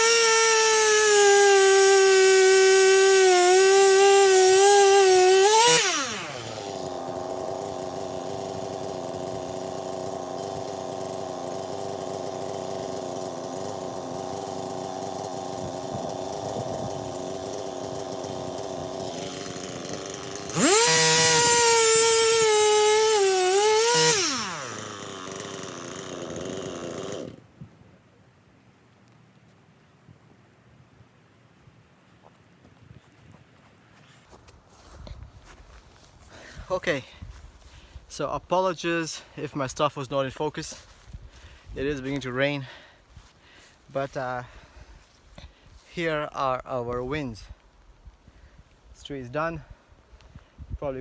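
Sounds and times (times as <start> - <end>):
chainsaw idling: 0.0 - 27.5, 35.4 - 46.2
chainsaw cutting wood: 0.0 - 27.6, 34.8 - 46.2.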